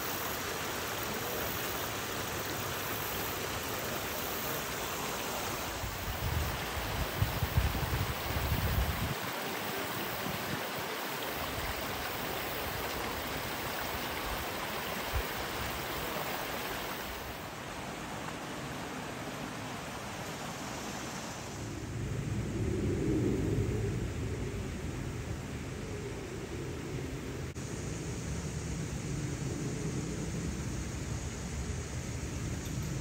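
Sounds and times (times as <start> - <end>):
rushing creek water: 0.0 - 21.6.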